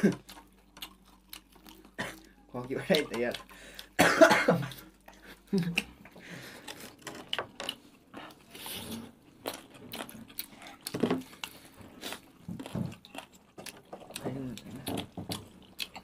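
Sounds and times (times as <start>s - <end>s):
people chewing and biting: 0.0s - 16.0s.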